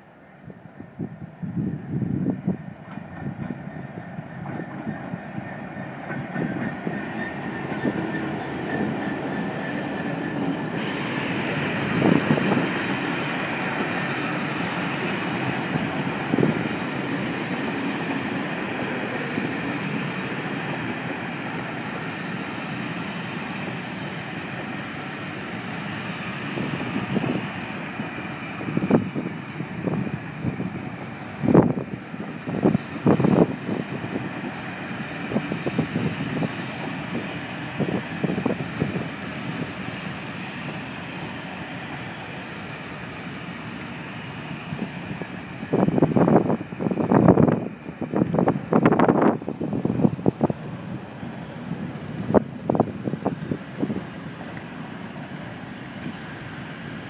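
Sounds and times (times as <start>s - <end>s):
train coaches rumbling: 0.0s - 57.0s
wheels clicking on rail joints: 2.8s - 20.0s, 41.8s - 57.0s.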